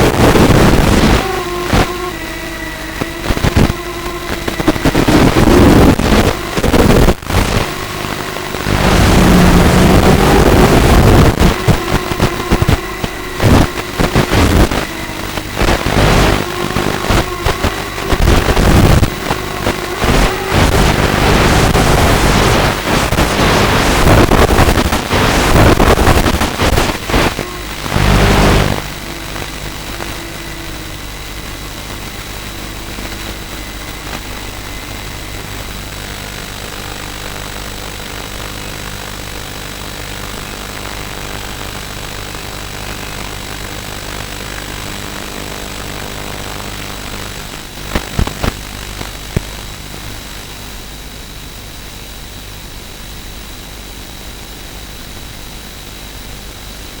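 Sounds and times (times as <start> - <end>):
quadcopter motors whirring: 0.0 - 23.4, 25.4 - 35.6.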